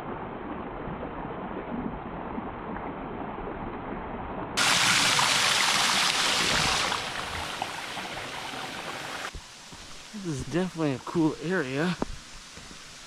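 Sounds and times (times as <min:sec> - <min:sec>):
waterfall and creek rushing: 0:04.6 - 0:13.0.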